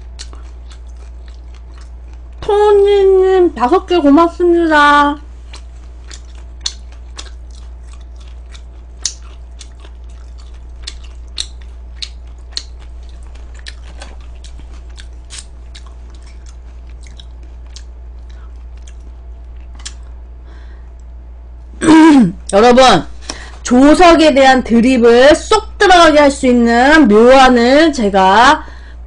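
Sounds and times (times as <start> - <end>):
crunchy chewing of fried chicken: 0.0 - 2.4, 5.3 - 20.8
steady low hum: 0.0 - 29.0.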